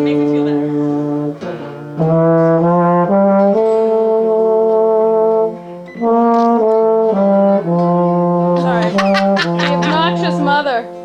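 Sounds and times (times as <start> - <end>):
solo brass instrument: 2.0 - 4.7.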